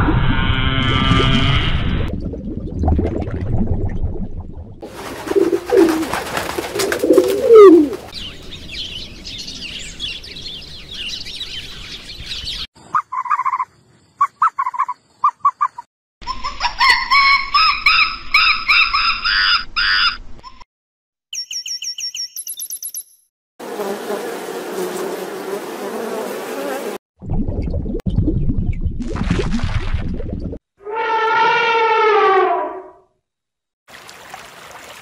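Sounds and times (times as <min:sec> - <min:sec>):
birds chirping: 0:06.8 - 0:15.9.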